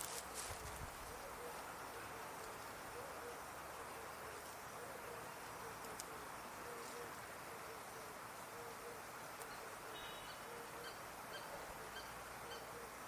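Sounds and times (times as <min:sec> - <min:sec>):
outdoor hiss: 0:00.0 - 0:13.0
bird hooting: 0:01.1 - 0:02.3, 0:02.9 - 0:04.0, 0:04.8 - 0:13.0
bird chirping: 0:08.6 - 0:13.0.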